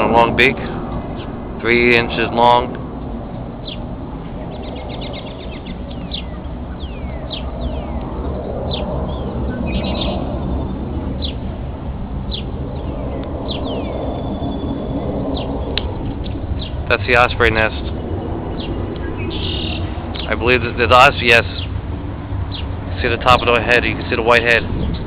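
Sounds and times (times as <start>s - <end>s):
steady low rumble: 0.0s - 25.0s
bird chattering trill: 4.5s - 11.5s, 16.5s - 21.8s
bird down-slurred whistles: 18.6s - 19.9s.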